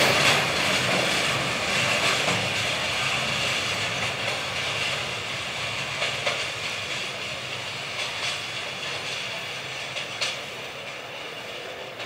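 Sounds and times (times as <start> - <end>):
train wheels on rails: 0.0 - 12.0
sharp rail clacks: 7.9 - 11.0.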